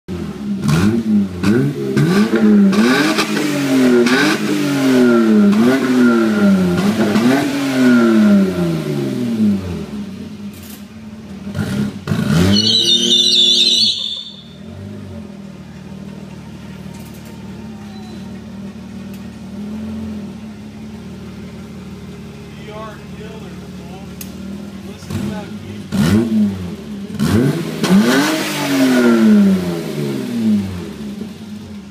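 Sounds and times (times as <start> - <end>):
car engine revving and idling: 0.1 - 31.9
brief high squeal: 12.4 - 14.7, 17.9 - 18.4.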